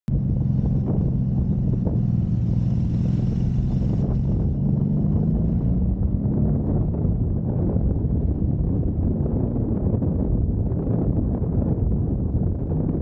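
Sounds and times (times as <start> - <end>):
motorcycle engine running steadily: 0.1 - 13.0
wind hiss: 0.4 - 5.6.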